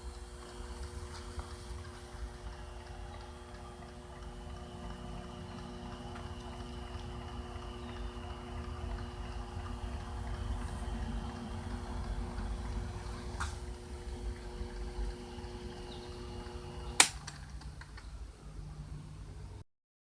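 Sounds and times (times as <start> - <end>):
machine tool humming: 0.0 - 19.5
sharp click: 17.0 - 18.1.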